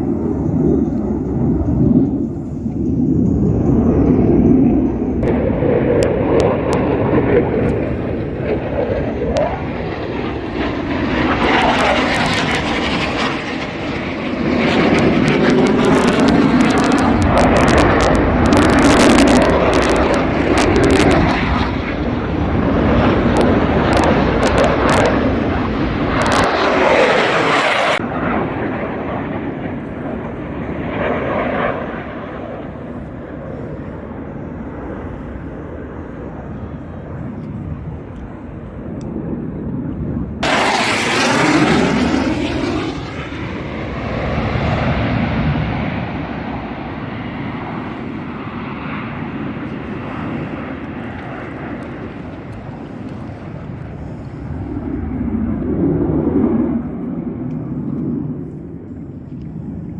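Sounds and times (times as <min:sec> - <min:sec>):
jet aircraft roaring overhead: 0:00.0 - 0:59.9.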